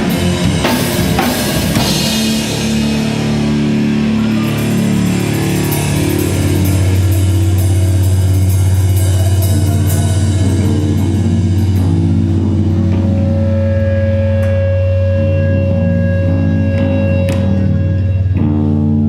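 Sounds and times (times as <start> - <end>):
cymbal crashes: 0.0 - 12.4
heavy rock band playing: 0.0 - 19.0.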